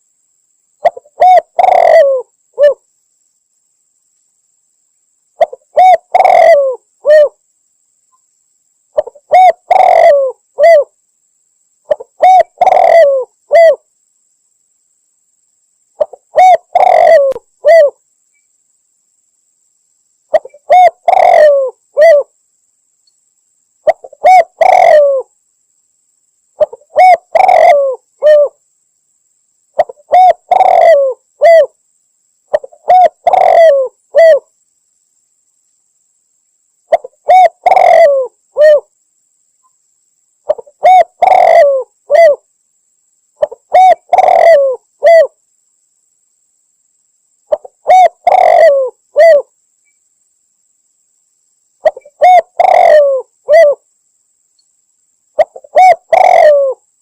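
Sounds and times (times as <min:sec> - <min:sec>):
dove cooing: 0:00.8 - 0:02.8, 0:05.4 - 0:07.4, 0:09.0 - 0:10.9, 0:11.9 - 0:13.8, 0:16.0 - 0:18.0, 0:20.3 - 0:22.3, 0:23.8 - 0:25.3, 0:26.6 - 0:28.6, 0:29.8 - 0:31.8, 0:32.5 - 0:34.5, 0:36.9 - 0:38.9, 0:40.5 - 0:42.4, 0:43.4 - 0:45.4, 0:47.5 - 0:49.5, 0:51.8 - 0:53.8, 0:55.4 - 0:56.9.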